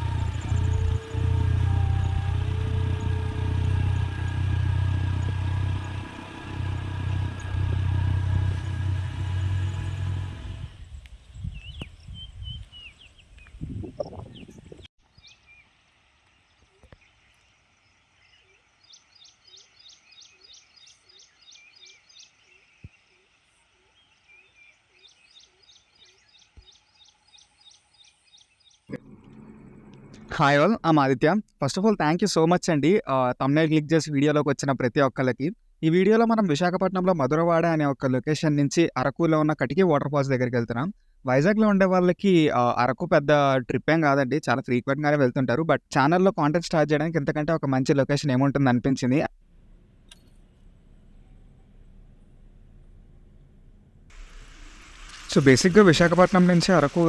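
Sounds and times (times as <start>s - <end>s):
birds chirping in rapid trills: 0.0s - 7.8s, 17.0s - 28.9s
motorcycle engine running: 0.0s - 10.9s, 28.9s - 30.6s, 49.6s - 57.0s.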